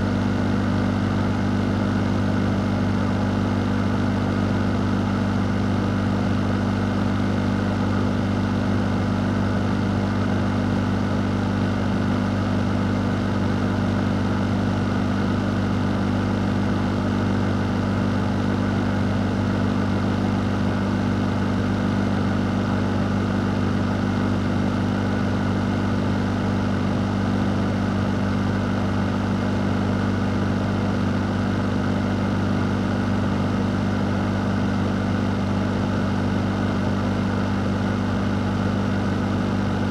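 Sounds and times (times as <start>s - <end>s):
fan rush of air: 14.5s - 39.9s.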